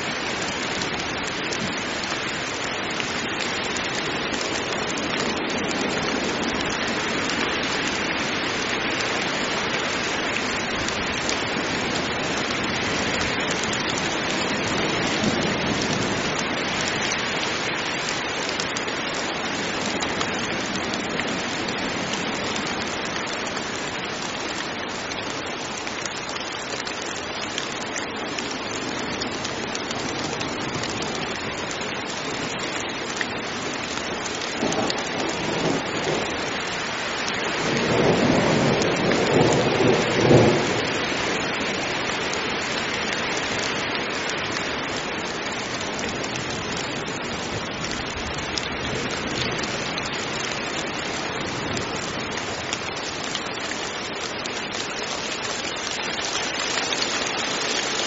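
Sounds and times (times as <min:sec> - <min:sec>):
heavy rain falling: 0:00.0 - 0:58.0
thunder rumbling: 0:34.6 - 0:36.8, 0:37.4 - 0:41.9.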